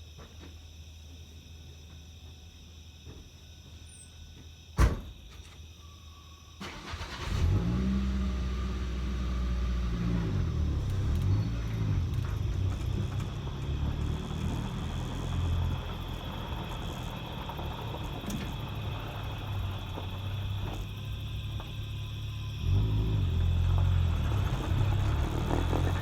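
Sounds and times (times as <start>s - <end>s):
door slam: 4.8s - 5.5s
vehicle engine starting and driving off: 6.6s - 26.0s.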